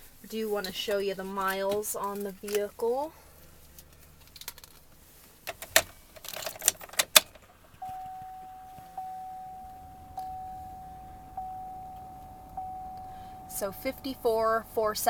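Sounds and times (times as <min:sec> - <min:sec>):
keys jingling in ignition: 0:05.5 - 0:15.0
dashboard warning chime: 0:07.8 - 0:15.0.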